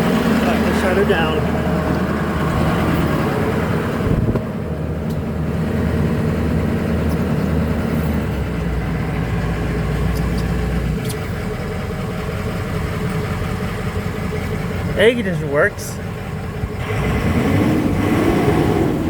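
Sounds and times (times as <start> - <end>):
deep low hum: 0.0 - 15.0
diesel engine idling: 0.0 - 19.0.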